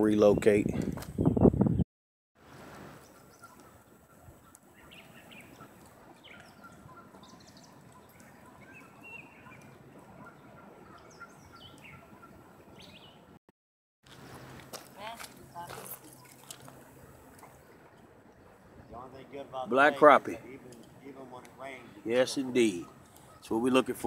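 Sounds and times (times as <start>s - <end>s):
bird trill: 3.0s - 13.3s
small birds chirping: 3.0s - 13.3s, 14.1s - 24.0s.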